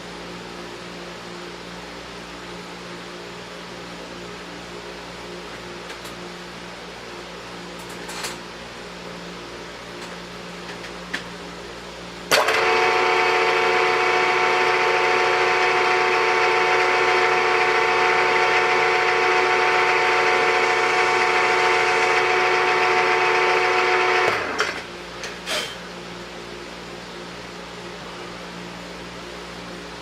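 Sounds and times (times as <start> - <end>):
milling machine whining: 12.3 - 24.9.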